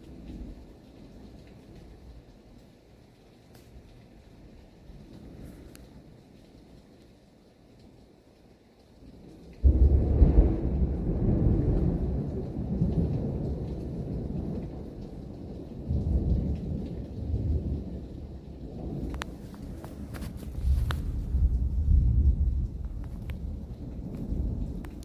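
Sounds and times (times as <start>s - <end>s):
thunder clap and rumble: 0.0s - 2.7s, 9.1s - 25.0s.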